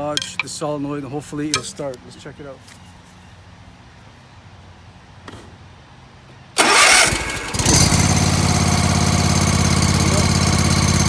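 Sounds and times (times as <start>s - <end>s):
electric starter cranking: 6.6s - 11.0s
mower engine idling: 6.6s - 11.0s.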